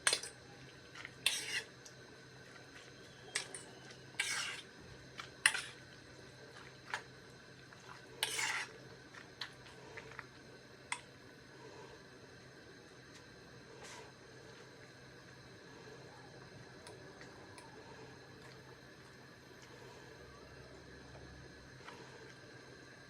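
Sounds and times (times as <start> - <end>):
dishes scraping: 1.0 - 1.7, 3.3 - 5.8, 8.2 - 8.8.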